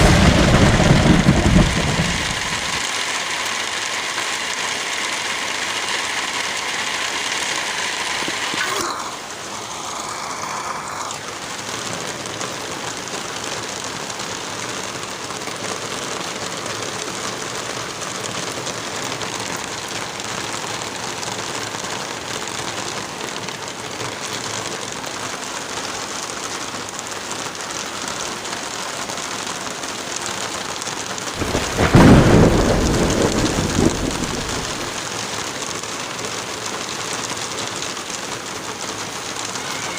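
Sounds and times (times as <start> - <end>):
thunder clap rumbling: 0.0 - 2.9, 31.4 - 35.0
steady rain falling: 0.0 - 39.9.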